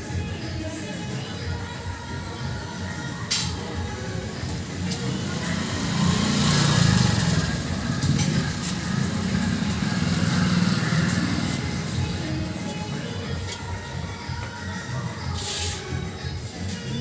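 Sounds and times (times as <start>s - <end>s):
vehicle engine rumbling: 4.1s - 13.5s.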